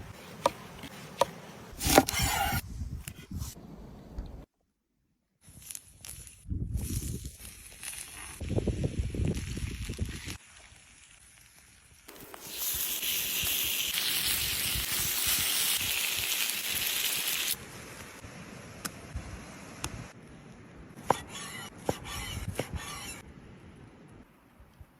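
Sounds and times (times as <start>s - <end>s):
fire crackling: 5.5s - 21.0s
meat sizzling over fire: 5.6s - 18.3s.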